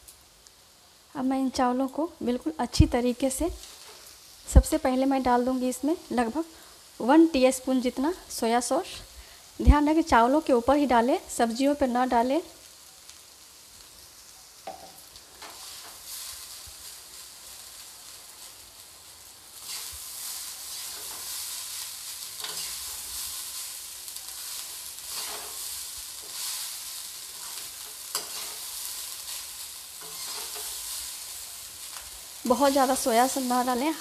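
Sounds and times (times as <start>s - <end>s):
rice sizzling in a pan: 0.0s - 34.0s
spatula scraping and knocking pan: 25.1s - 26.5s, 27.4s - 28.7s, 30.0s - 30.9s.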